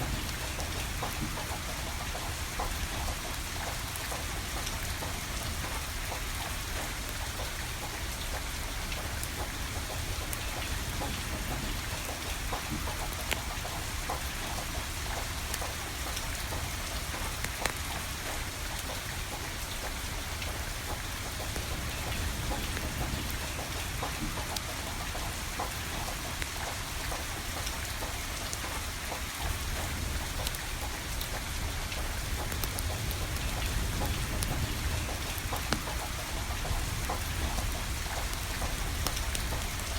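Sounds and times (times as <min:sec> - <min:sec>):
steady rain falling: 0:00.0 - 0:39.9
wood fire crackling and popping: 0:00.1 - 0:39.9.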